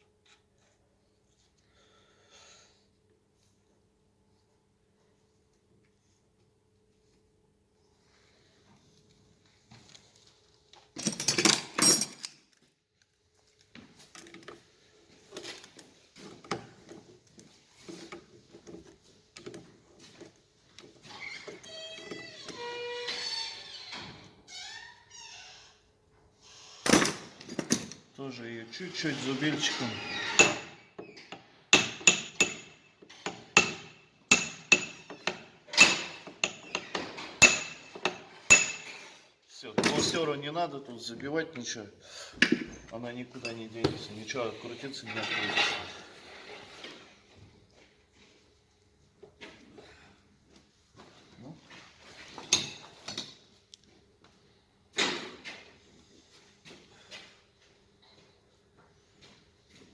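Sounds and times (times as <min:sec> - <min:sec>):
tools clicking and rattling: 0:10.9 - 0:13.1, 0:30.3 - 0:39.1
hammer striking metal chisel: 0:31.8 - 0:39.0.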